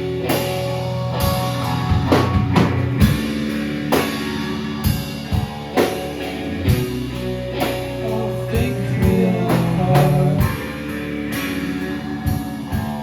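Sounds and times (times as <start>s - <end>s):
drum kit hits: 0.0s - 8.0s
bass guitar: 0.0s - 13.0s
electric guitar: 0.0s - 13.0s.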